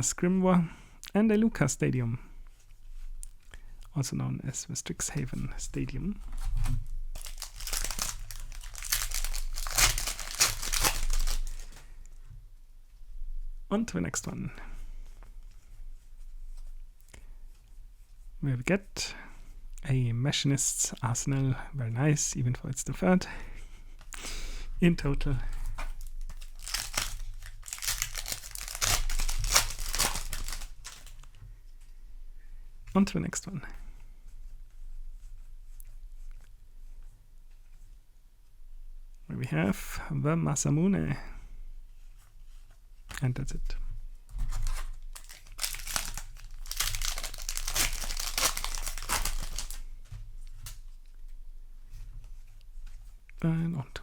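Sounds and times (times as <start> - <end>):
foil wrapper crinkling: 6.2 - 11.9, 25.6 - 31.4, 44.5 - 49.9
wrapper tearing: 6.2 - 11.9, 25.8 - 31.4, 44.6 - 49.9.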